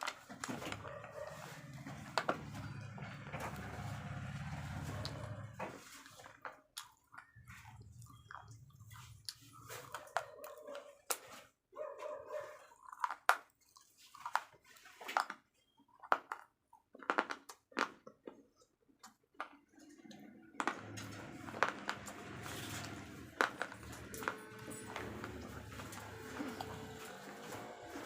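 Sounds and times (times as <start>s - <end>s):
slate pencils crunching: 20.7s - 28.0s.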